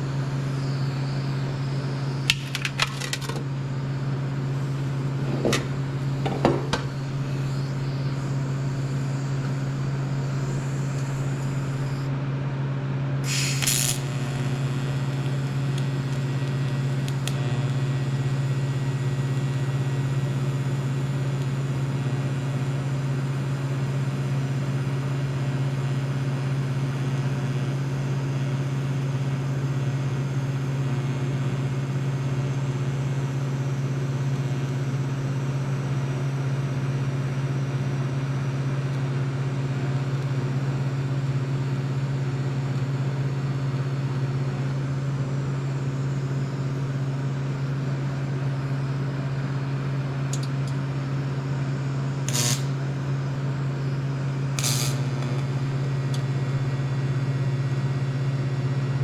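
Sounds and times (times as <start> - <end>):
low machine hum: 0.0 - 59.0
short sharp hisses or clicks: 13.2 - 14.0.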